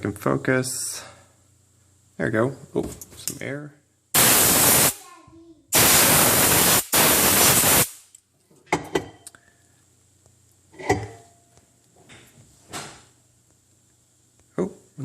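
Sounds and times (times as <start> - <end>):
compressed air hissing: 4.2 - 5.0, 5.7 - 8.1.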